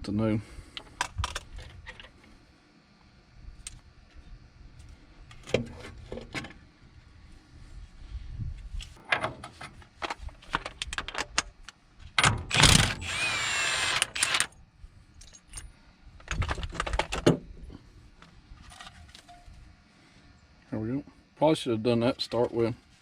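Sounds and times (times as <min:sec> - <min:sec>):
power tool running: 0:12.5 - 0:14.5.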